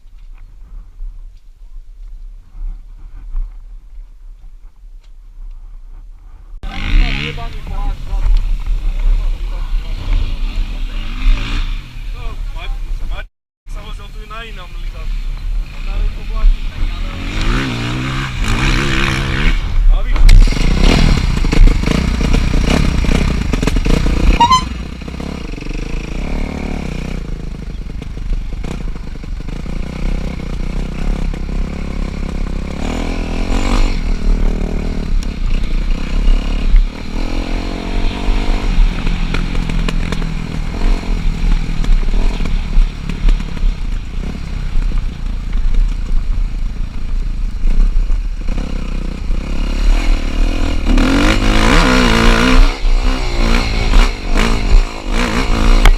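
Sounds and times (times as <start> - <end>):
motocross bike engine revving: 6.6 - 12.4, 15.1 - 46.9, 48.0 - 55.9.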